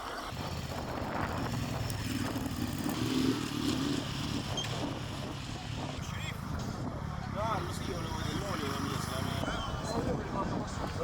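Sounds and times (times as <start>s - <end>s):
motorcycle engine at low revs: 0.2s - 6.0s.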